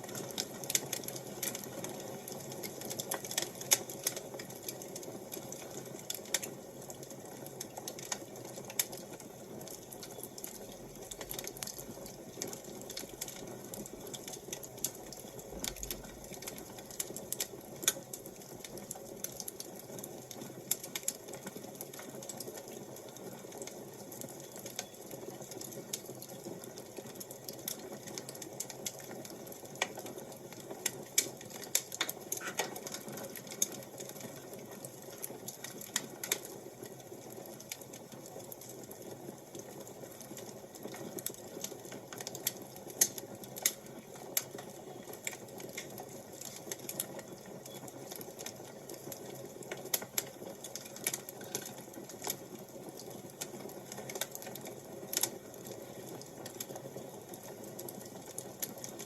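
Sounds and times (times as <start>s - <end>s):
fire crackling and popping: 0.0s - 59.0s.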